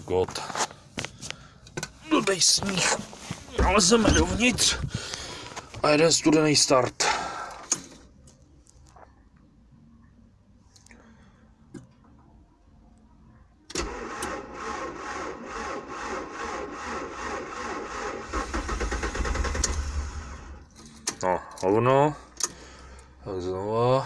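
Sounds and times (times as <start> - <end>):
starter motor cranking engine: 13.7 - 20.6.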